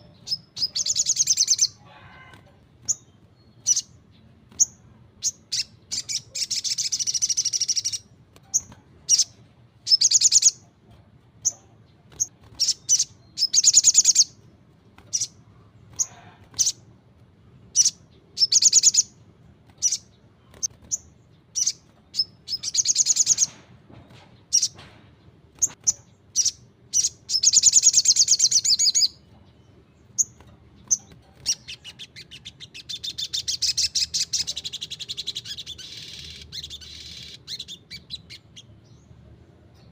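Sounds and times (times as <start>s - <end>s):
bird chattering trills: 0.0s - 2.3s, 2.9s - 10.7s, 15.0s - 16.9s, 17.7s - 19.1s, 25.6s - 38.8s.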